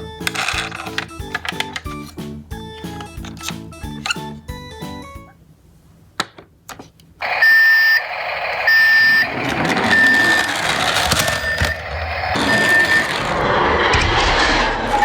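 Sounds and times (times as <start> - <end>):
toy high electronic beeps: 7.2 - 13.2.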